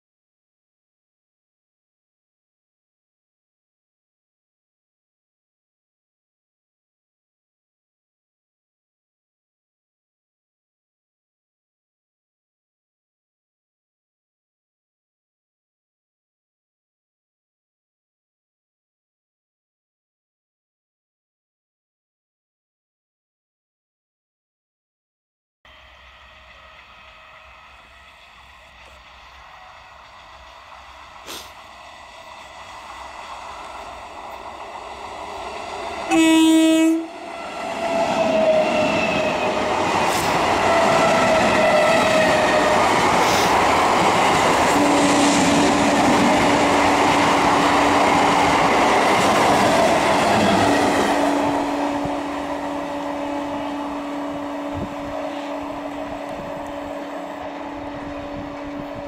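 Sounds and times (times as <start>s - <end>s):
electric train passing: 25.7s - 59.0s
wheels rushing on rails: 25.7s - 59.0s
train horn blast: 36.0s - 39.7s, 50.5s - 59.0s.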